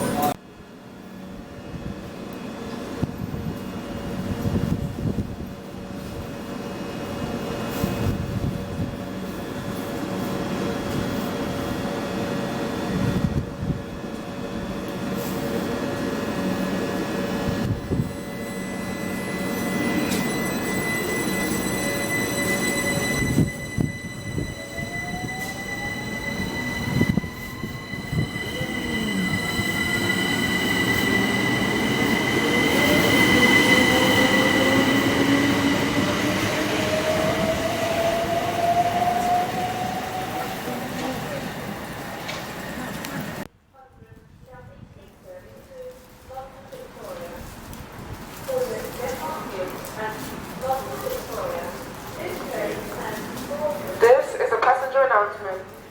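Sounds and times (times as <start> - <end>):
train whine rising in pitch: 15.4 - 43.4
train high squeal: 17.2 - 43.5.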